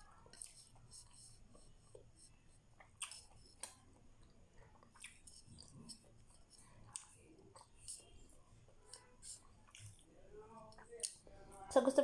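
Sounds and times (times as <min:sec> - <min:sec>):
wet chewing: 0:02.7 - 0:08.1, 0:08.8 - 0:11.2.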